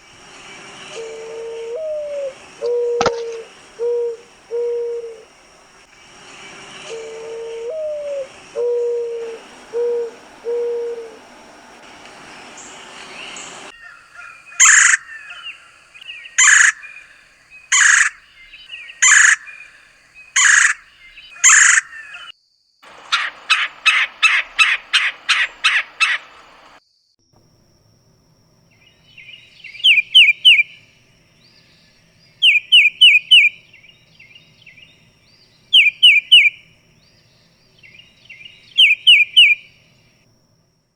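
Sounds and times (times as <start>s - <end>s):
loud harsh bird calls: 0.0s - 22.3s, 22.9s - 26.8s, 28.7s - 40.1s
low hooting bird notes: 0.0s - 22.3s, 22.9s - 26.8s, 28.6s - 40.2s
rapid short bird notes: 0.2s - 22.3s, 22.9s - 26.8s
high bird chirps: 6.4s - 22.3s, 22.9s - 26.8s, 28.8s - 30.8s, 31.4s - 39.8s.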